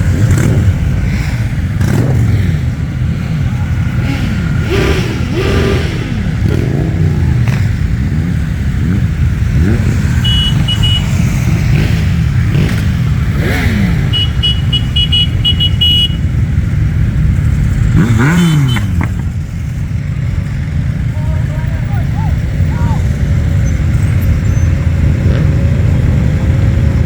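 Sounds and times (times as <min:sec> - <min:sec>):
motorcycles passing: 0:00.0 - 0:27.0.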